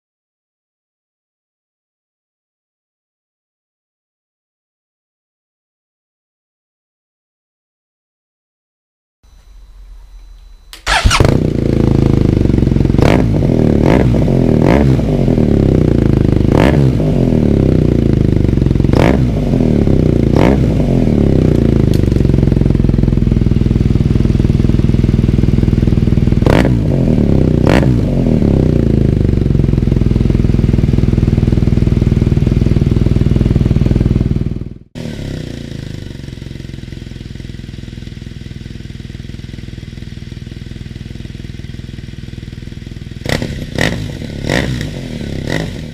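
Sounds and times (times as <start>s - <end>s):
motorcycle engine idling: 10.8s - 14.4s, 15.4s - 16.6s, 17.4s - 20.5s, 21.2s - 45.9s
motorcycle engine revving: 10.8s - 45.9s.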